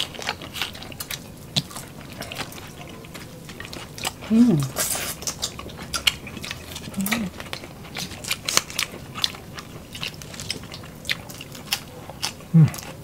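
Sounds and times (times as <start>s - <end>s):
people chewing and smacking: 0.0s - 13.0s
person humming: 4.3s - 4.8s, 7.0s - 7.3s, 12.6s - 12.8s.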